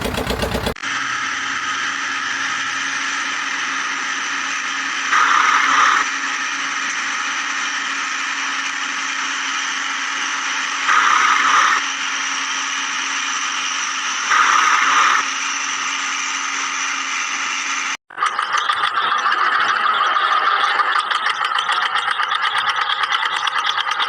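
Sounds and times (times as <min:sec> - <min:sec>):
another engine: 0:00.0 - 0:00.8
cartoon backhoe engine drone: 0:00.0 - 0:04.6.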